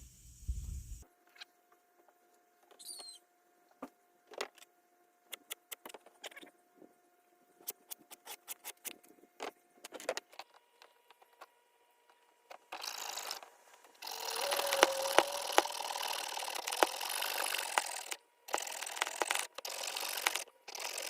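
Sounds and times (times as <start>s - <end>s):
power tool cutting fiberglass: 14.0s - 21.0s.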